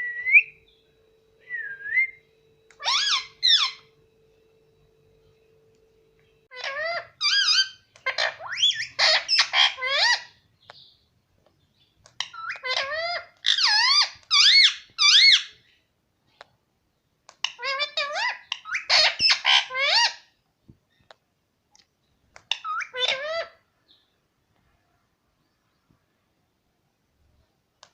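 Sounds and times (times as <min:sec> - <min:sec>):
parrot chattering: 0:02.8 - 0:03.9, 0:06.5 - 0:10.4, 0:12.1 - 0:15.6, 0:17.4 - 0:20.3, 0:22.4 - 0:23.6.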